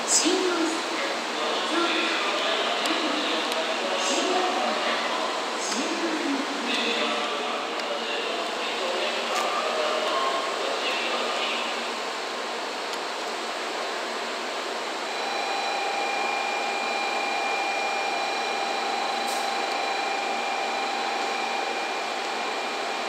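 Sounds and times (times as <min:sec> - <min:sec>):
train rushing hum: 0:00.0 - 0:23.0
high whine: 0:15.0 - 0:23.0.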